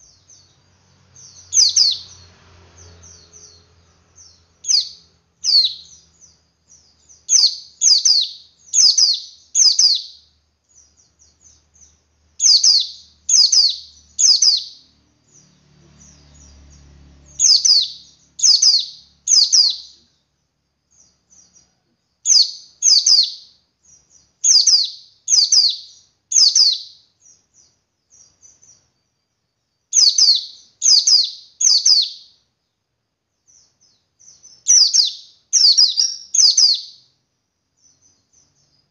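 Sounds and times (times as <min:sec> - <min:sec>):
soft quick bird chirps: 0:00.0 - 0:20.2.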